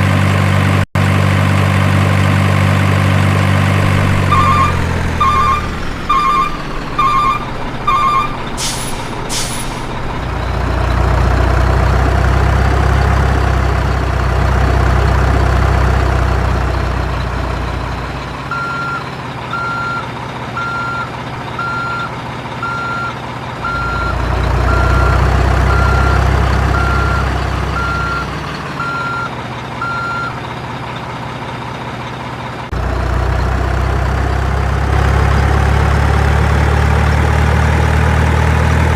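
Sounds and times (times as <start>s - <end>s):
diesel engine rumble: 0.0s - 38.9s
reversing alarm beeping: 4.2s - 9.8s, 18.5s - 20.0s, 20.6s - 30.4s
air brake hisses: 8.6s - 10.0s.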